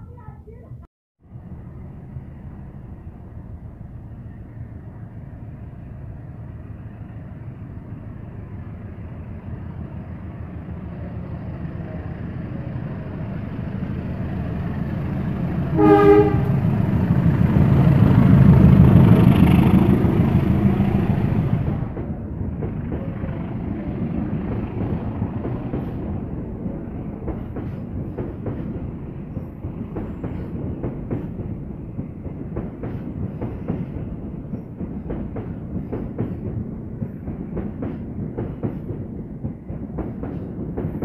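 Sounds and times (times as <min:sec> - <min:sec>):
train rumbling past: 0:00.0 - 0:41.0
train horn blast: 0:15.7 - 0:16.7.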